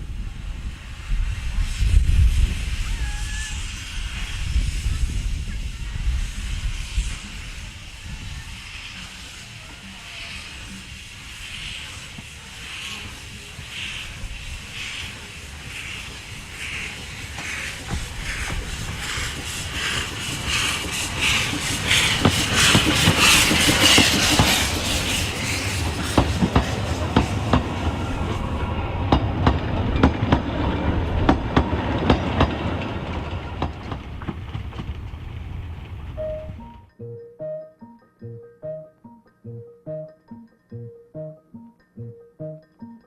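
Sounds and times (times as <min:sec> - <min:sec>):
steam locomotive exhaust chuffs: 0:00.0 - 0:36.8
wheels clicking over rail joints: 0:10.8 - 0:36.8.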